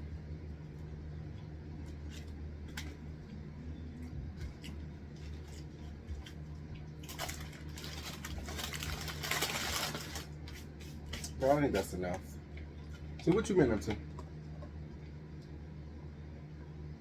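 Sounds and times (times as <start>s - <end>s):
low electrical hum: 0.0s - 17.0s
chewing crunchy food: 4.0s - 10.4s.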